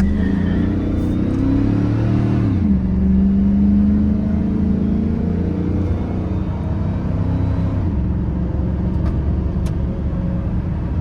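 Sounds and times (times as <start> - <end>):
engine accelerating: 0.0 - 7.8.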